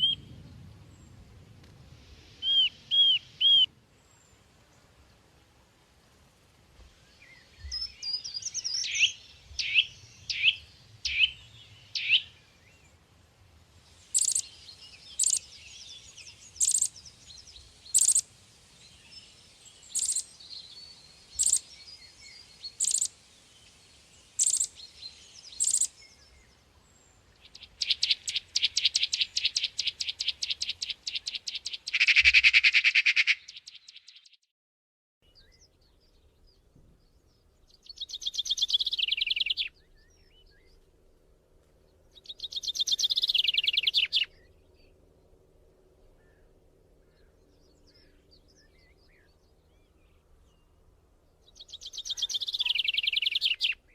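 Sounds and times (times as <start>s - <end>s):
bird chirping and trilling: 0.0s - 0.3s, 2.4s - 3.7s, 7.6s - 12.4s, 14.1s - 18.2s, 19.8s - 23.2s, 24.3s - 26.3s, 27.4s - 34.3s, 37.8s - 40.8s, 42.2s - 44.5s, 51.5s - 53.9s
buzzy bird call: 2.4s - 3.7s, 14.1s - 14.5s, 15.1s - 15.5s, 16.6s - 17.0s, 17.9s - 18.2s, 22.7s - 23.1s, 24.4s - 24.8s, 25.6s - 25.9s, 27.5s - 33.8s, 51.8s - 53.8s.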